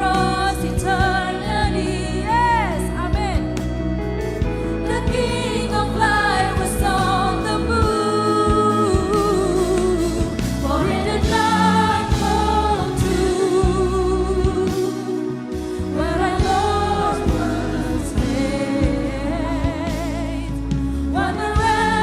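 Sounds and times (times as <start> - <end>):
worship band playing: 0.0 - 22.0
group singing held notes: 10.6 - 14.0, 16.0 - 20.1.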